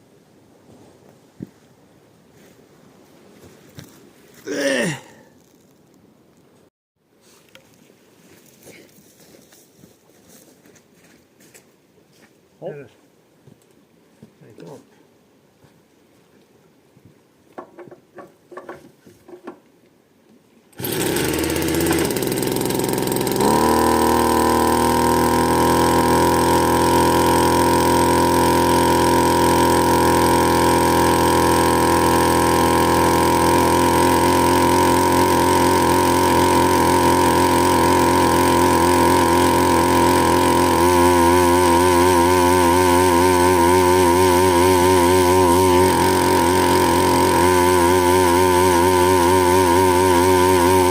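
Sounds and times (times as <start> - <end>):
engine starting and running: 20.7 - 50.9.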